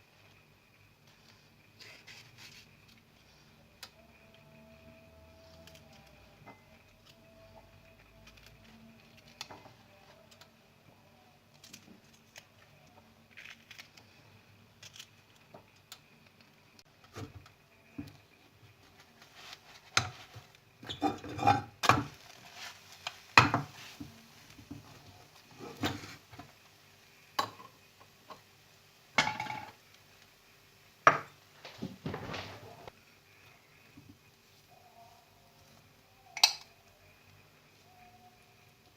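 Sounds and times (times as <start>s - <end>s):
dishes and utensils clinking: 20.8s - 22.1s, 29.2s - 29.8s.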